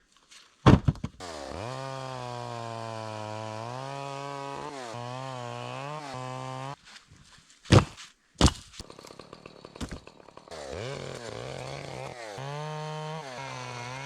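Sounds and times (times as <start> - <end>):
chainsaw cutting firewood: 1.2 - 6.8, 8.8 - 14.0.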